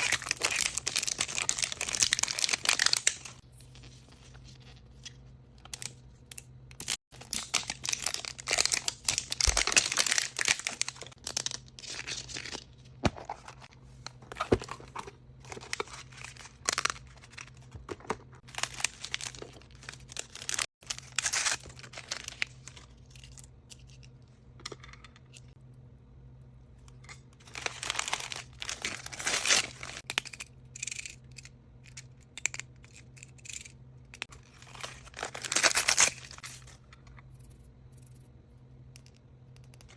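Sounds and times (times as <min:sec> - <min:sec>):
packaging torn and crinkled: 0:00.0 - 0:03.4, 0:07.2 - 0:12.6, 0:18.4 - 0:23.3, 0:27.4 - 0:30.1, 0:34.5 - 0:36.5.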